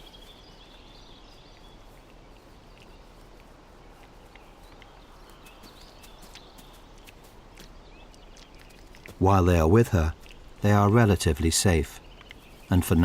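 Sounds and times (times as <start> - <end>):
faint bird chirps: 0.0 - 13.0
small ticks: 0.0 - 13.0
soft steady hiss: 0.0 - 13.0.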